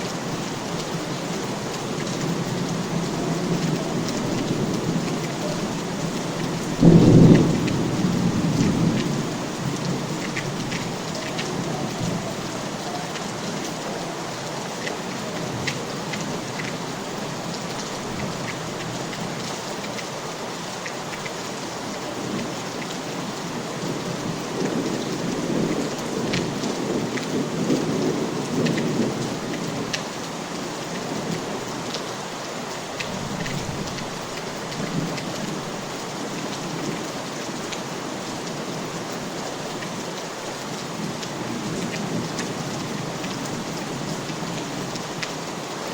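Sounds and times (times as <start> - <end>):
steady rain: 0.0 - 45.9
water drips: 0.2 - 20.1
thunder clap and rumble: 1.2 - 13.8, 23.8 - 30.0.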